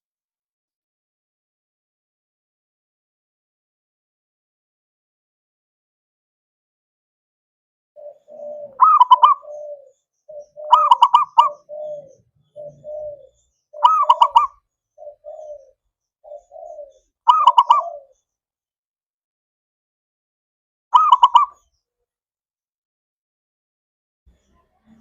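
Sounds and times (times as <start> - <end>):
dove calling high notes: 8.0 - 18.2, 20.9 - 21.7
soft low dove coos: 8.0 - 18.2.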